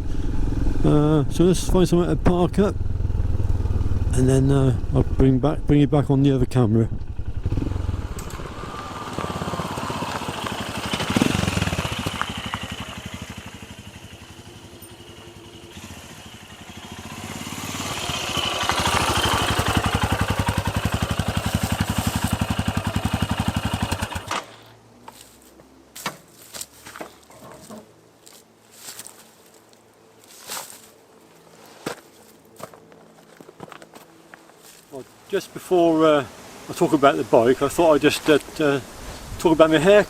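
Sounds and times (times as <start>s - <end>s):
motorcycle engine running: 0.0s - 24.3s.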